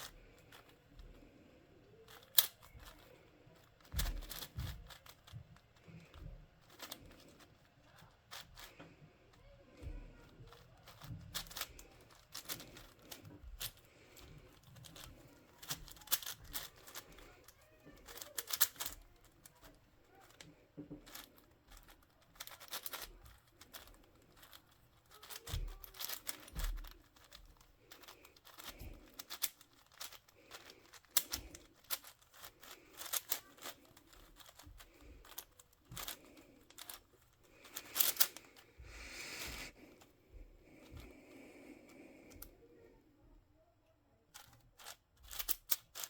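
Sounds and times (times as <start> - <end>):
puzzle cube plastic clicks: 0.0 - 42.6, 44.3 - 46.0.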